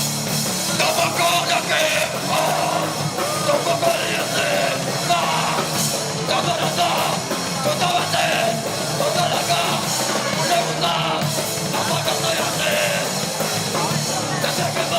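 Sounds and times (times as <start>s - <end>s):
punk band playing live: 0.0s - 14.9s.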